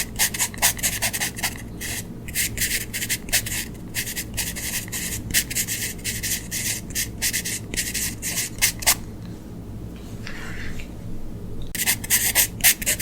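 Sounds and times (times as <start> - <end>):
drawing tool scratching paper: 0.0 - 9.0, 11.8 - 13.0.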